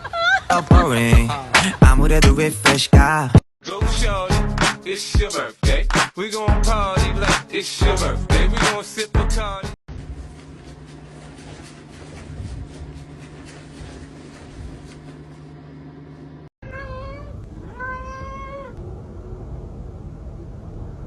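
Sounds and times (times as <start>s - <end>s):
steady low hum: 9.9s - 16.5s
cat meowing: 16.6s - 18.8s.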